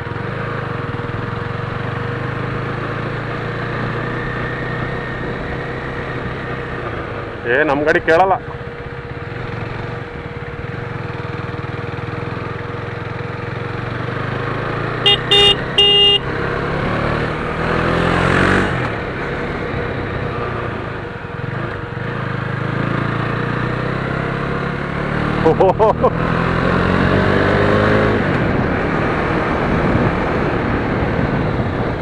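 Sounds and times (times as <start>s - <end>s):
motorcycle engine running: 0.0s - 32.0s
vehicle passing: 14.6s - 21.0s
vehicle horn toots: 15.0s - 16.4s.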